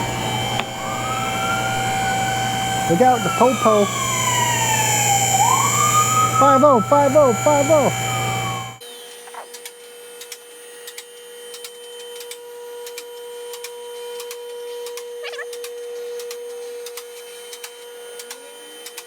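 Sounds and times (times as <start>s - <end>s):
electric pump motor humming: 0.0s - 8.8s.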